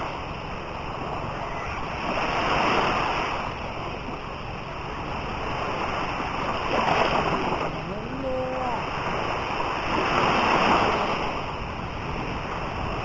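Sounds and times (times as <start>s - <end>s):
sea waves breaking: 0.0s - 13.0s.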